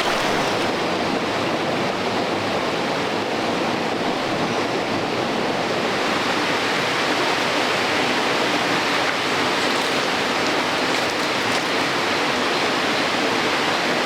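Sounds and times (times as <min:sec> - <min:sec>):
water rushing over rocks: 0:00.0 - 0:00.8.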